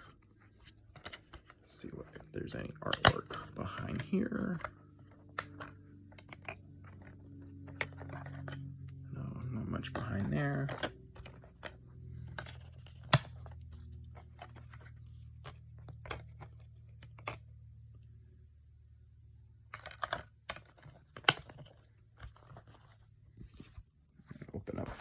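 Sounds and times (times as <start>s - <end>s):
disc case clicks and taps: 2.7s - 4.7s, 12.4s - 13.4s
disc case sharp clacks: 9.9s - 13.7s.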